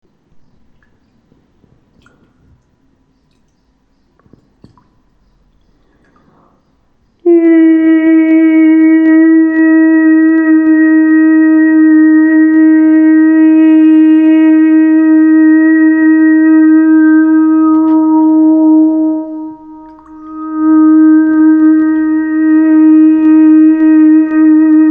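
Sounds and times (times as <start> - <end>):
wind instrument long note: 7.3 - 24.9.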